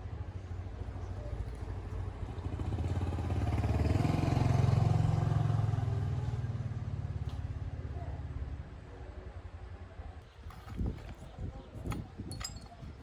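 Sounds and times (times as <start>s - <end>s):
small petrol engine: 0.0s - 8.0s.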